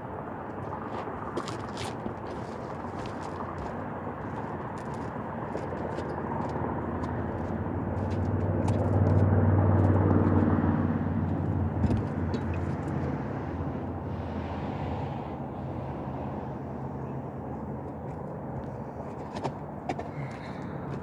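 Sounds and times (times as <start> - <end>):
low steady background rumble: 0.0 - 21.0
vehicle engine humming past: 6.0 - 21.0.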